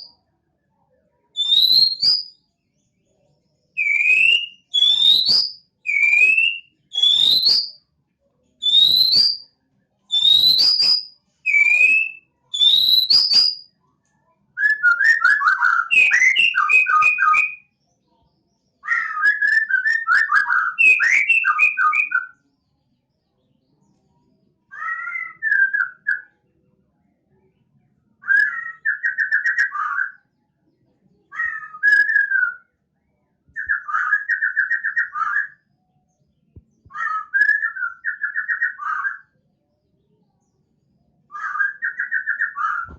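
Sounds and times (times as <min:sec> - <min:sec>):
songbird singing: 0:01.4 - 0:02.4, 0:03.7 - 0:07.7, 0:08.6 - 0:09.5, 0:10.1 - 0:13.7, 0:33.5 - 0:39.3, 0:41.3 - 0:42.9.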